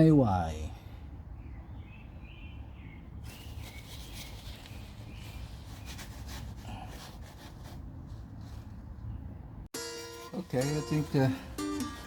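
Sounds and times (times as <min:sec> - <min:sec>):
bird chirps: 0:01.3 - 0:06.3
rustling: 0:03.2 - 0:09.2.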